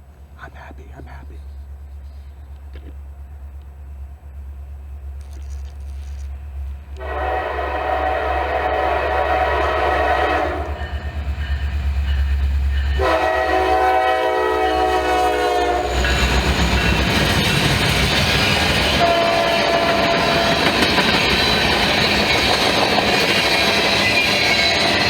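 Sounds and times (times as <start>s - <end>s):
wheel-on-rail noise: 1.9s - 7.1s, 15.9s - 25.0s
multi-note locomotive air horn: 7.0s - 11.0s, 13.0s - 16.3s, 18.9s - 20.8s.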